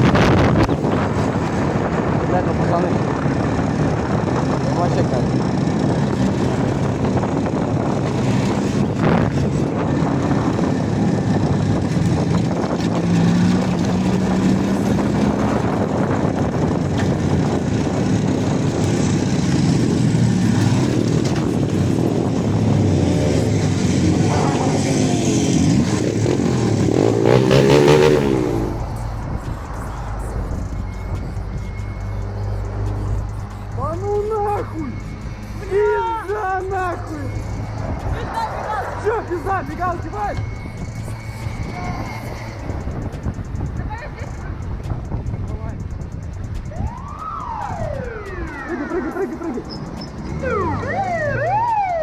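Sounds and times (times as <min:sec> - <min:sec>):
motorcycle engine at speed: 0:00.0 - 0:31.6
wind rushing: 0:00.0 - 0:33.9, 0:34.8 - 0:52.0.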